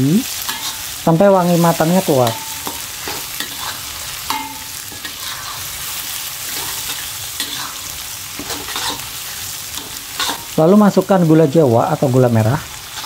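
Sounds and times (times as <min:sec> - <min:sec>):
spice paste sizzling in oil: 0:00.0 - 0:13.0
metal spatula scraping wok: 0:00.2 - 0:11.2, 0:12.6 - 0:13.0
spatula clinking against pan: 0:02.2 - 0:05.2.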